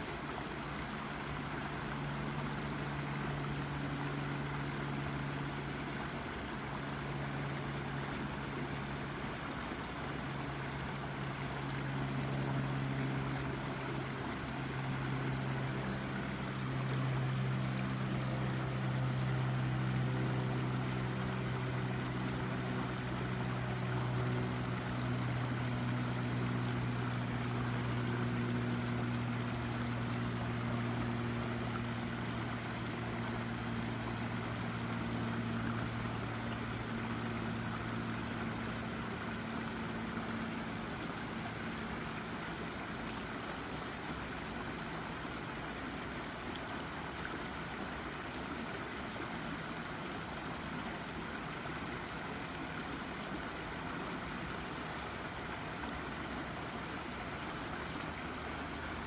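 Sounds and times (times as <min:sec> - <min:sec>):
low droning hum: 0:00.0 - 0:46.6
brook water babbling over rock: 0:00.0 - 0:59.0.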